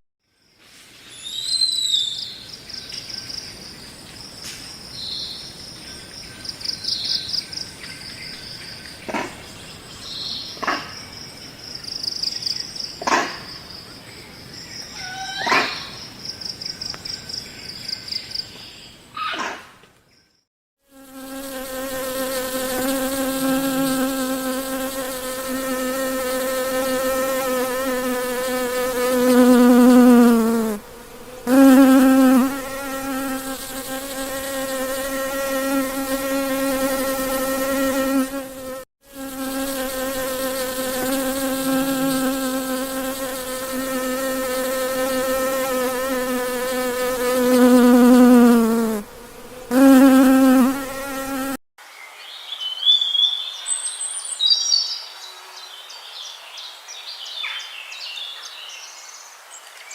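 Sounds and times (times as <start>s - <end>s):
insect wing buzz: 20.8s - 51.6s.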